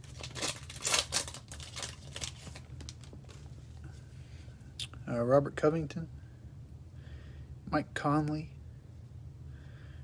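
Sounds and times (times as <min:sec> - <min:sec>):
card wrapper rustling and crinkling: 0:00.0 - 0:03.7
steady low hum: 0:00.0 - 0:10.0.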